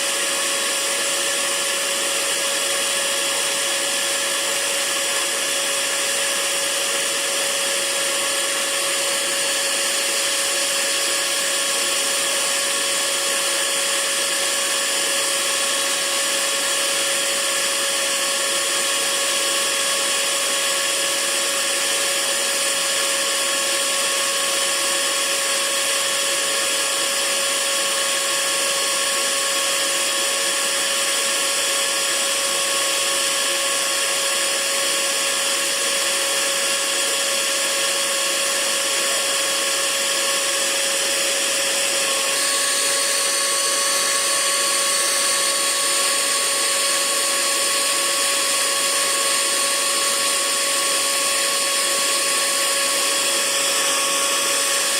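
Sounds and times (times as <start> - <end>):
hair dryer running: 0.0 - 54.9.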